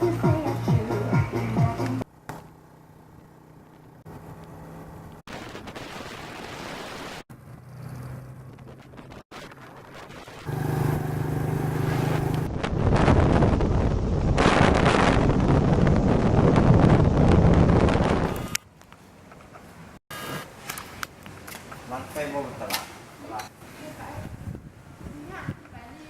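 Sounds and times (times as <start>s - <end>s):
motorbike engine humming: 10.5s - 12.5s
wind buffeting microphone: 11.9s - 18.6s, 23.9s - 26.0s.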